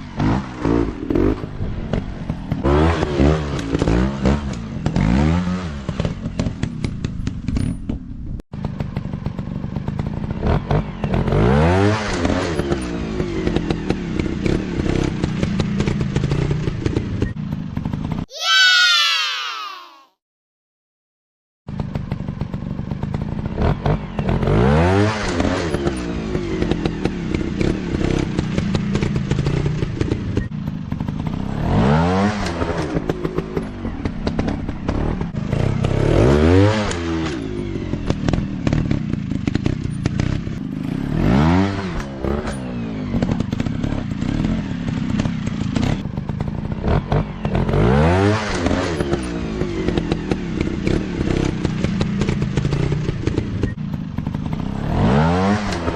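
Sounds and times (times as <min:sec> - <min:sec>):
dirt bike engines revving: 0:22.9 - 0:55.9.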